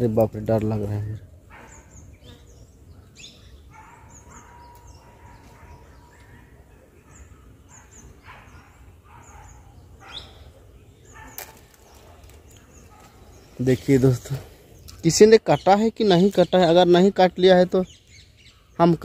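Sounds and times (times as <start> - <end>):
small birds chirping: 0.0 - 19.0
sharp snaps: 11.2 - 13.1.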